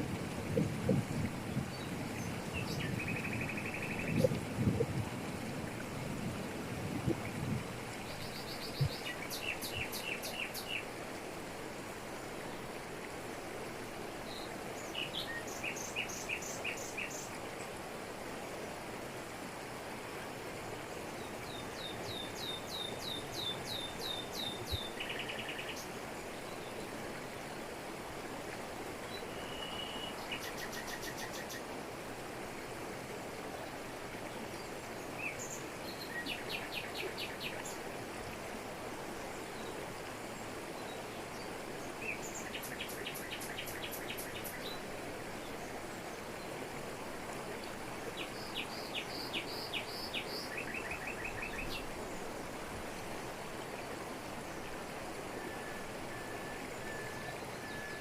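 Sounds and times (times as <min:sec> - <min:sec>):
songbirds chirping and trilling: 0:48.2 - 0:52.4.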